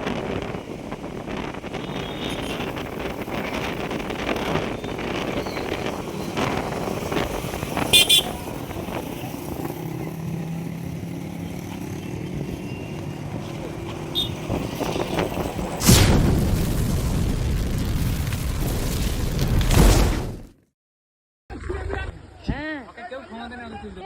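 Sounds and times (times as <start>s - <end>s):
loud sudden burst of noise: 15.8s - 20.5s.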